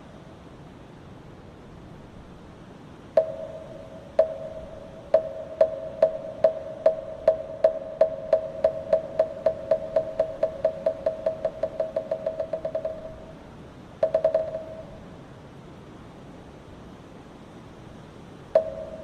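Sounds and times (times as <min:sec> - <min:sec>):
soft steady hiss: 0:00.0 - 0:19.0
wooden fish drum strokes: 0:03.2 - 0:13.4, 0:14.0 - 0:14.9.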